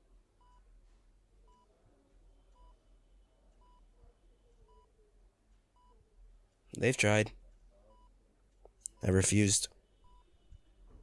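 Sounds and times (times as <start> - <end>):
heart monitor beeping: 3.6 - 3.9.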